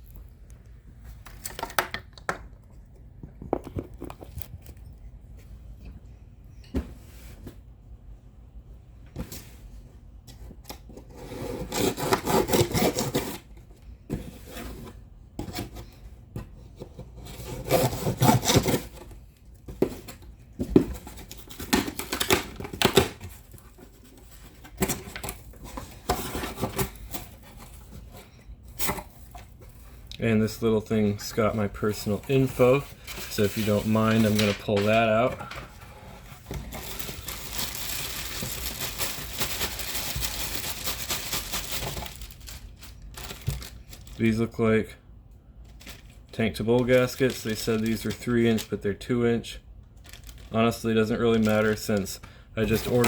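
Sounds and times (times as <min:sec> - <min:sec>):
cardboard rubbing and scraping: 0:11.0 - 0:13.5, 0:16.9 - 0:19.1.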